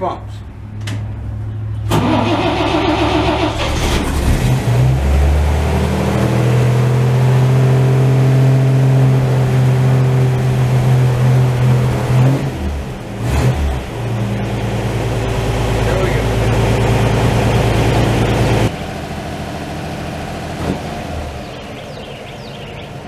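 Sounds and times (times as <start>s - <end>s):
truck engine revving and idling: 0.3s - 23.0s
starter motor cranking: 1.9s - 5.0s.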